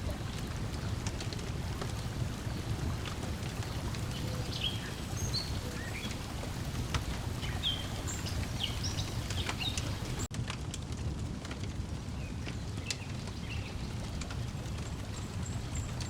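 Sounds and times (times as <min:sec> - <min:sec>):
birds chirping: 0:00.0 - 0:10.3, 0:12.4 - 0:14.2
water lapping: 0:00.0 - 0:10.3
faint wood fire crackles: 0:00.0 - 0:16.0.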